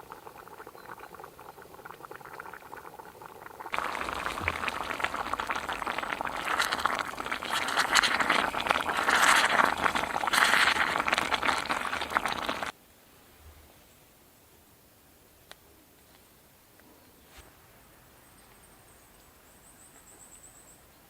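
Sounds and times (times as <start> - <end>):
pasta sauce bubbling in pot: 0.0 - 12.8.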